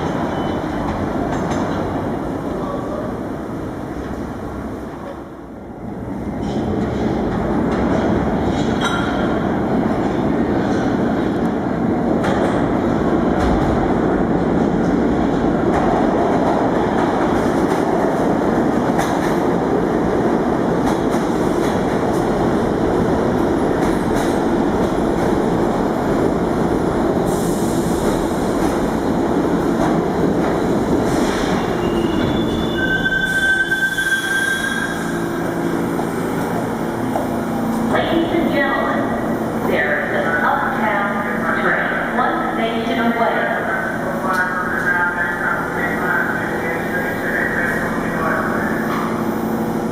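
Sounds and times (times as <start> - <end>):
subway train rumbling: 0.0 - 49.9
steel wheel squeal: 31.6 - 35.1.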